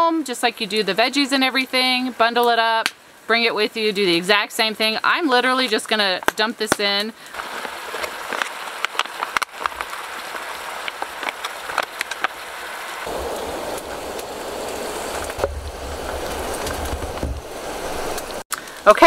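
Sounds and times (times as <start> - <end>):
crackles and pops: 2.4 - 3.0, 5.7 - 19.0
rushing noise with low rumble: 12.5 - 18.4.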